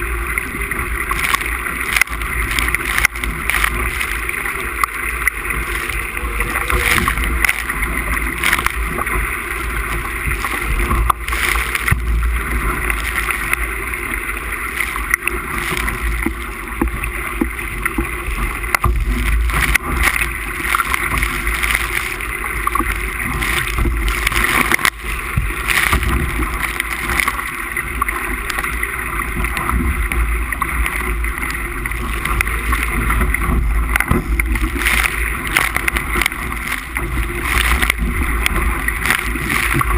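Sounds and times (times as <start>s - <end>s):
wind buffeting microphone: 0.0s - 14.5s
water splashing along hull: 0.0s - 39.9s.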